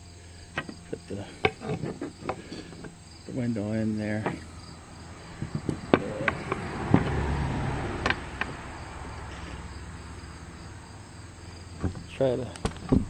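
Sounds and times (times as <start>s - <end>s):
crickets chirping: 0.0s - 13.0s
light handling knocks: 5.4s - 7.2s, 11.8s - 13.0s.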